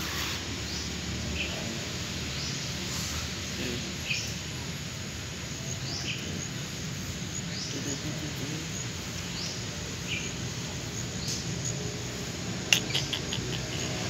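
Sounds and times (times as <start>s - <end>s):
steady background hiss: 0.0s - 14.0s
bird chirping: 12.6s - 14.0s.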